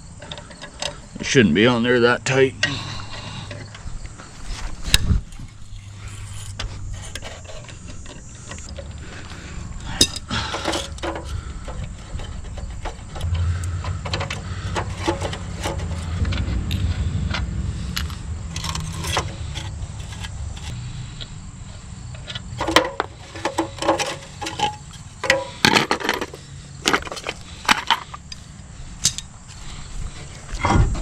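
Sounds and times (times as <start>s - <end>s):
lug nuts and wrench clinking: 4.5s - 16.4s, 17.9s - 20.8s, 22.1s - 29.6s
low rumble: 13.1s - 22.6s.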